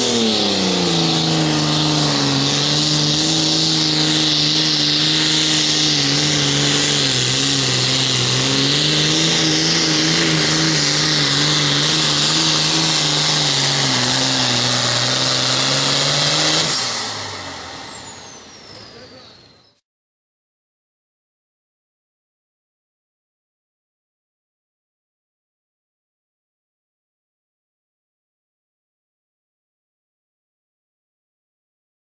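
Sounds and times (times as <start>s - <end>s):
diesel tractor engine under load: 0.0s - 19.8s
turbo whine spooling down: 0.0s - 19.8s.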